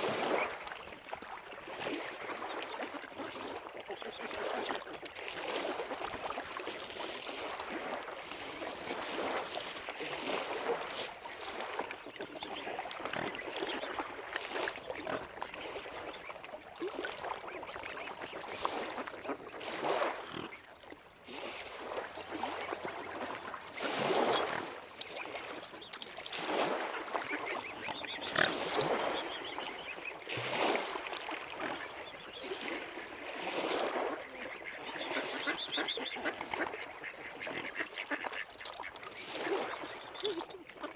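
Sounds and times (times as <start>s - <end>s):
waterfowl calling: 21.9s - 40.9s.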